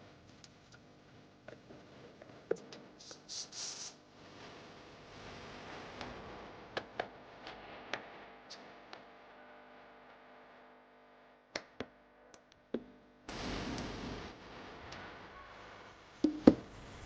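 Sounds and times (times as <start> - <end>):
short hissing bursts: 3.0 - 4.0.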